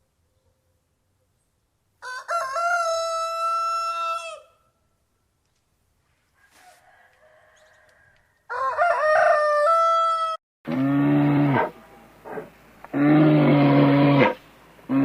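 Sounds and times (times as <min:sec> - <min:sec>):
rooster crowing: 0:02.0 - 0:04.8, 0:06.4 - 0:10.4
cow mooing: 0:10.7 - 0:15.0.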